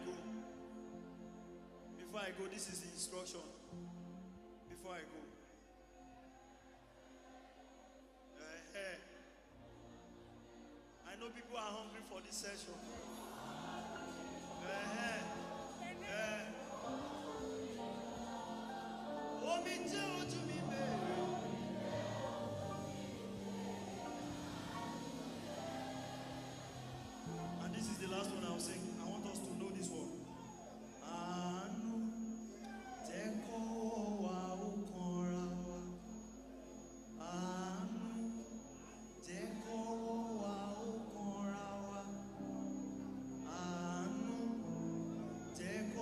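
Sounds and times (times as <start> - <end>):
man singing gospel song: 0.0 - 0.9, 1.9 - 3.8, 8.4 - 9.2, 11.0 - 46.0
sustained keyboard chords: 12.6 - 32.6.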